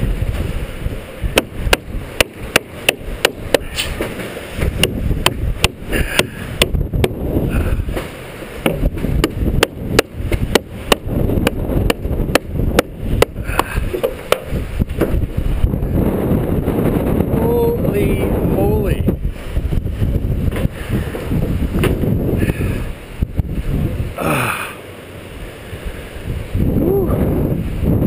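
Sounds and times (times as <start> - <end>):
wind buffeting microphone: 0.0 - 24.5, 25.3 - 28.0
sharp clicks or knocks: 7.9 - 15.2.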